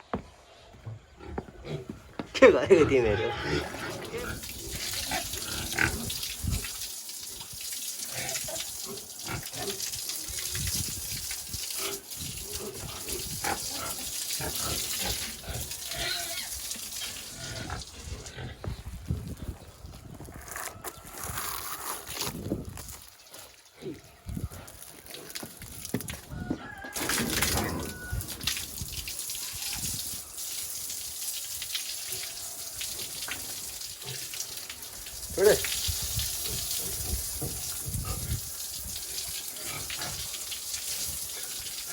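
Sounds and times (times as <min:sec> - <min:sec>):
pigs grunting and oinking: 0:01.1 - 0:02.0, 0:02.6 - 0:06.8, 0:08.0 - 0:10.4, 0:11.6 - 0:18.9, 0:23.3 - 0:25.8, 0:26.9 - 0:28.3, 0:32.0 - 0:34.6, 0:35.3 - 0:41.9
running water rushing: 0:02.4 - 0:18.3, 0:26.9 - 0:41.9.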